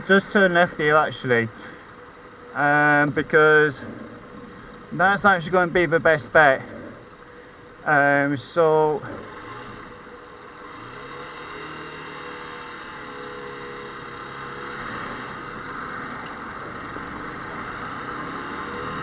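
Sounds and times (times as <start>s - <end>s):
wind and road noise: 0.0s - 19.0s
motorcycle engine running: 8.9s - 19.0s.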